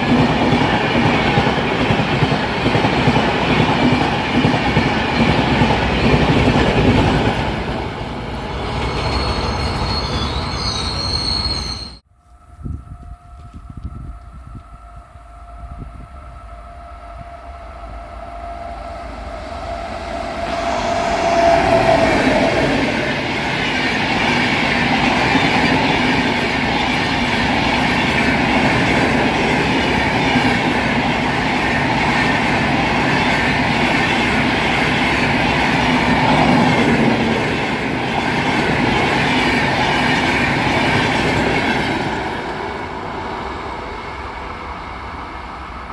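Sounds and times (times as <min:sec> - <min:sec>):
train horn: 0:11.4 - 0:23.3.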